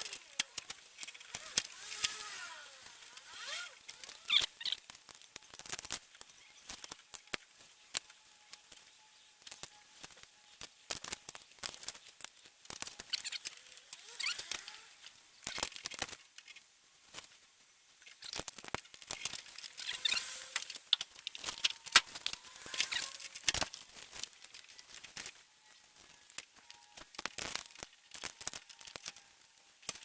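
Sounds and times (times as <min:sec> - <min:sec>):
squeaky scraping: 0:01.4 - 0:04.8, 0:19.6 - 0:23.6.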